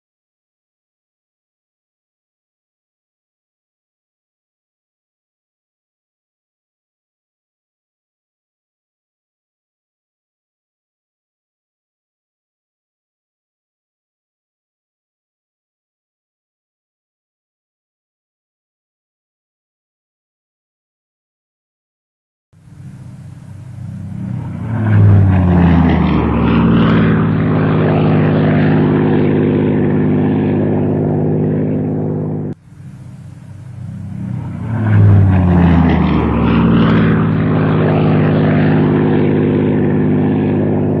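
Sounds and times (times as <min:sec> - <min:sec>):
propeller aircraft engine starting: 0:22.6 - 0:41.0.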